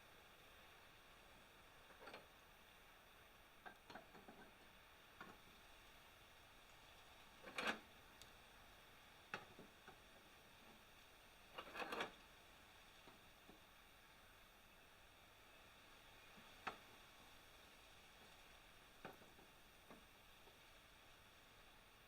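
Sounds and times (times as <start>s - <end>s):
faint steady hiss: 0.0s - 22.0s
light clicks and knocks: 19.0s - 20.6s.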